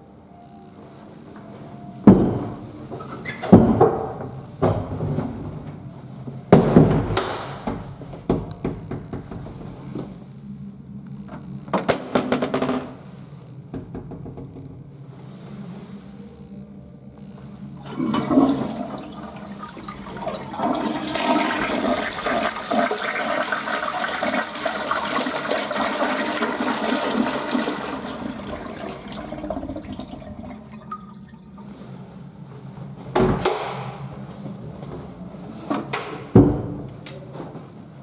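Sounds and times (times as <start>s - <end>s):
toilet flushing: 17.8s - 31.8s.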